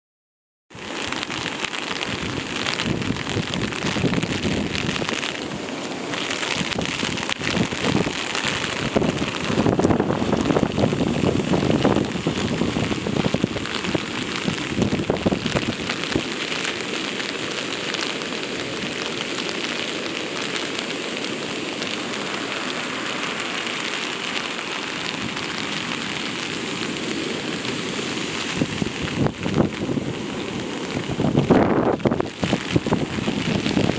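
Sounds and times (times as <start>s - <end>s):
heavy surf breaking: 0.7s - 33.9s
rain: 0.7s - 33.9s
wind: 0.7s - 33.9s
wind buffeting microphone: 0.9s - 16.5s, 27.6s - 33.9s.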